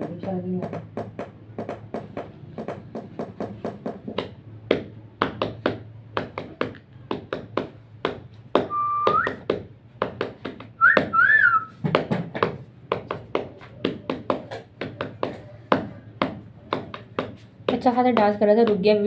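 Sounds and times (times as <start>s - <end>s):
quick tapping on a surface: 0.0s - 18.8s
short whistles: 8.7s - 9.4s, 10.8s - 11.8s.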